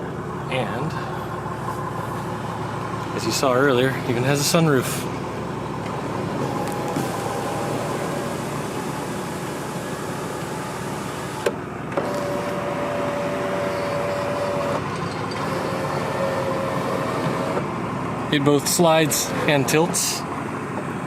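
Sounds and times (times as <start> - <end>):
steady background hum: 0.0 - 21.0
electric sunroof motor whine: 1.3 - 3.3, 4.5 - 18.4.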